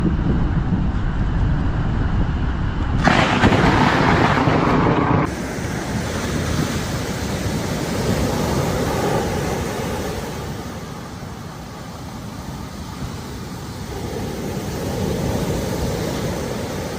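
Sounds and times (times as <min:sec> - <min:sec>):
wind on microphone: 0:00.0 - 0:16.9
surf: 0:03.0 - 0:16.9
loud rushing hiss: 0:05.3 - 0:16.9.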